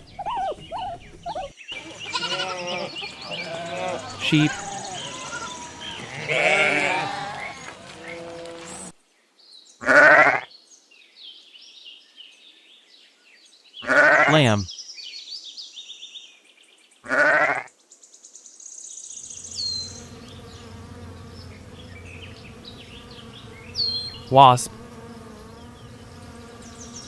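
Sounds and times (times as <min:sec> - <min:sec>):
sheep and lambs bleating: 0:02.0 - 0:02.9.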